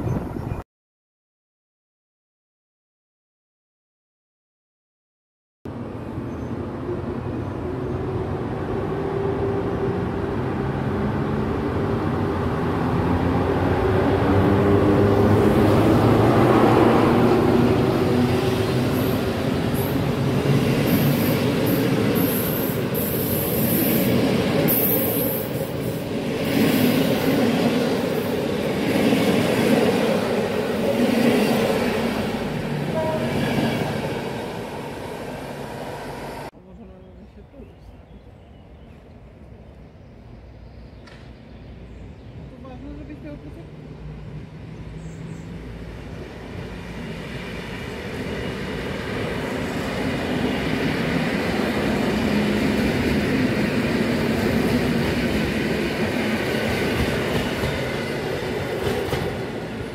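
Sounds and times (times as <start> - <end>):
electric locomotive hum: 5.7 - 37.0.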